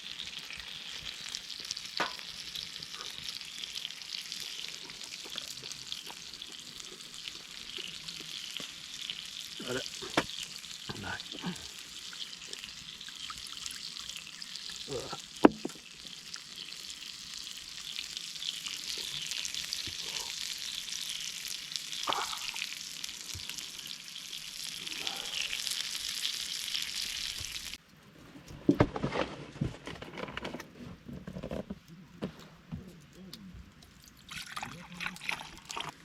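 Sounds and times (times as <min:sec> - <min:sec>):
food sizzling in a hot pan: 0:00.0 - 0:27.8.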